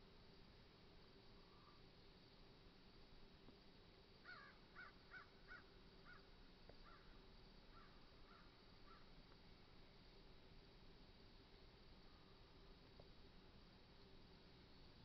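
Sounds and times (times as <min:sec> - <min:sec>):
faint harsh bird calls: 0:04.2 - 0:09.2.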